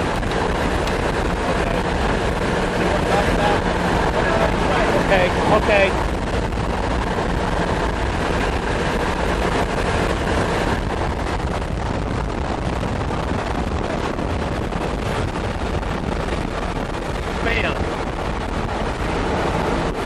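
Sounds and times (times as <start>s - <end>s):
car driving rumble: 0.0s - 20.0s
wind noise on microphone: 0.0s - 20.0s.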